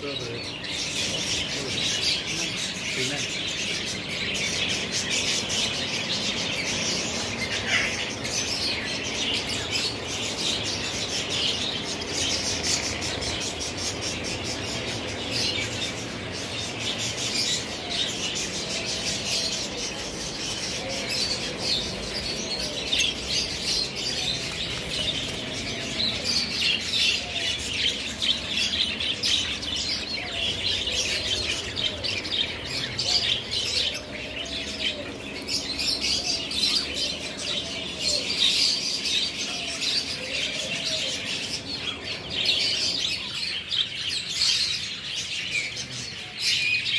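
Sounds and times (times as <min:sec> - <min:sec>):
low warbling bird calls: 0:00.0 - 0:46.9
small birds chirping: 0:00.0 - 0:46.9
wings flapping: 0:24.0 - 0:26.4.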